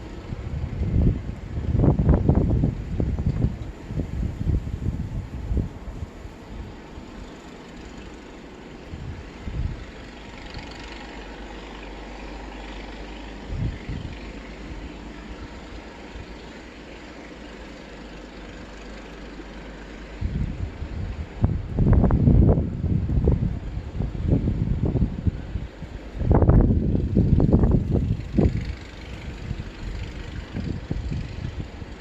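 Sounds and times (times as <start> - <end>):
low rumble: 0.0 - 8.0, 20.1 - 32.0
wind buffeting microphone: 0.0 - 17.8, 20.0 - 32.0.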